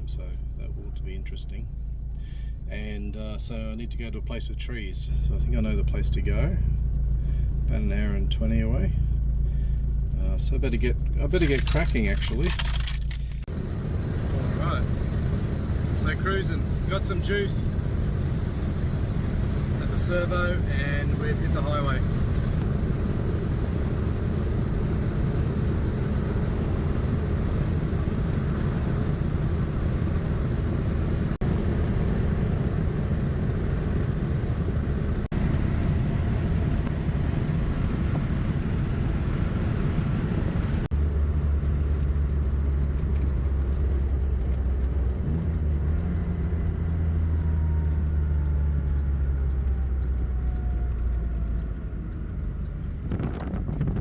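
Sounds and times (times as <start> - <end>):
car engine cruising: 0.0 - 54.0
road noise: 0.0 - 54.0.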